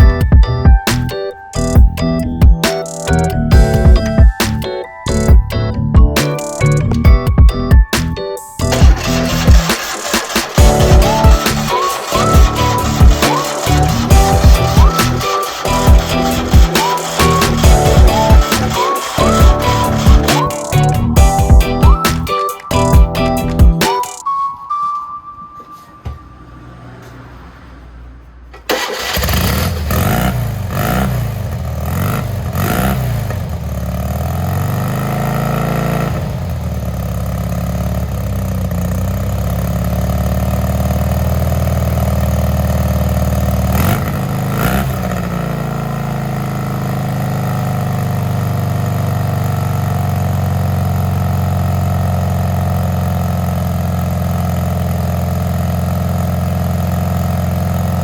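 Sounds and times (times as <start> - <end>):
car engine revving and idling: 8.6 - 22.1, 26.6 - 58.0.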